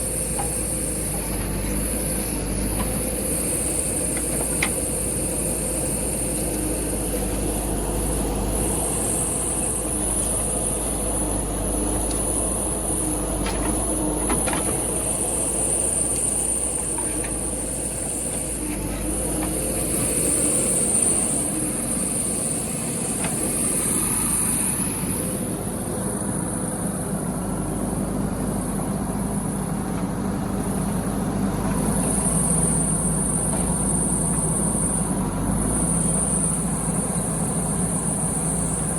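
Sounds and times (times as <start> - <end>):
diesel engine running: 0.0 - 38.9
high-pitched hiss: 3.1 - 13.3.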